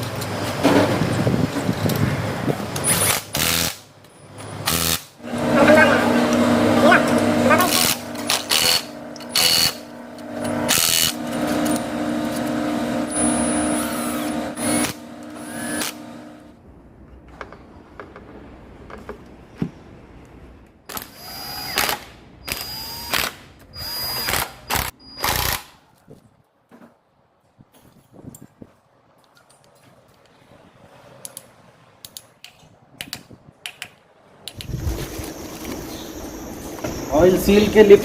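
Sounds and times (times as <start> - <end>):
power tool running: 2.8 - 3.8, 4.6 - 16.6, 20.9 - 25.6.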